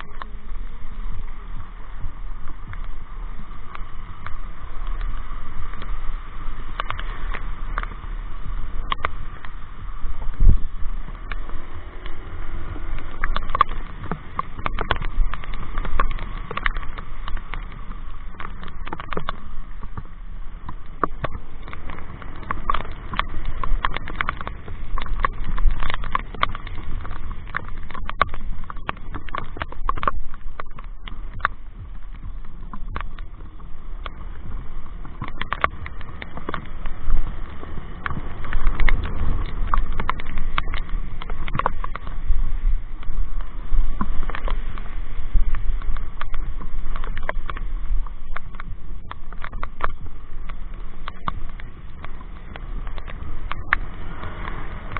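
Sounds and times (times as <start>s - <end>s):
motorcycle riding rumble: 0.0s - 54.9s
raindrops tapping microphone: 0.0s - 54.9s.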